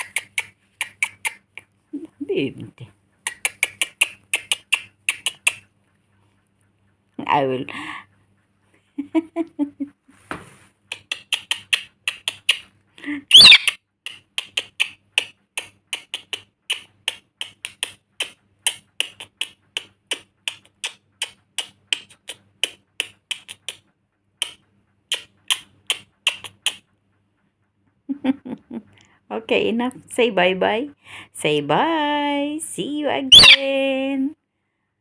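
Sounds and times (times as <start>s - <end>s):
parrot shrill call: 13.3s - 13.8s, 33.3s - 33.6s.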